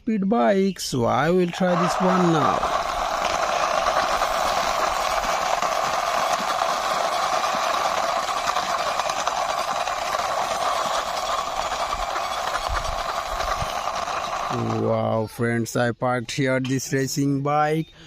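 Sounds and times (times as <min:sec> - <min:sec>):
toy plastic wheels rolling: 0:01.0 - 0:15.0.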